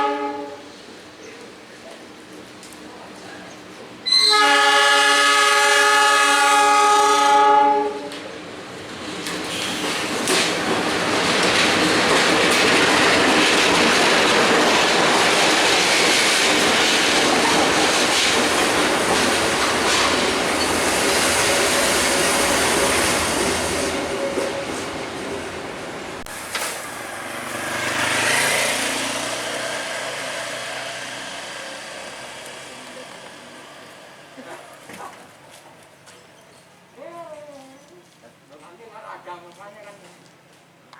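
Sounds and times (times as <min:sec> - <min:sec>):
train passing over rails: 0:02.0 - 0:36.4.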